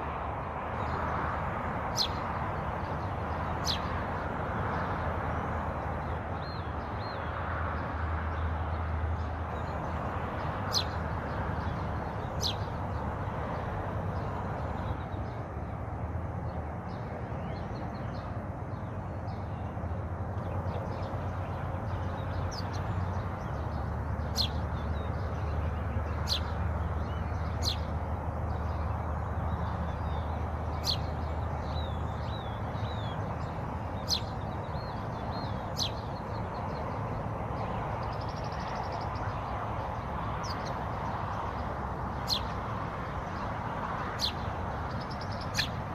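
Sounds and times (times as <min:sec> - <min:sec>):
small birds chirping: 0:01.8 - 0:15.8, 0:16.4 - 0:45.9
faint bird twittering: 0:20.4 - 0:37.0, 0:44.2 - 0:45.8.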